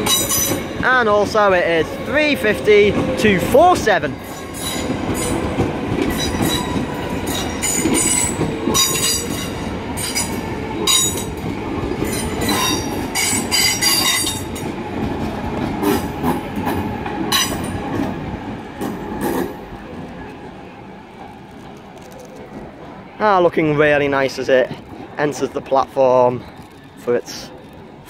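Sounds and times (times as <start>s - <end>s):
wheels rumbling on rail: 0.0s - 28.0s
wheels squealing: 4.2s - 11.4s.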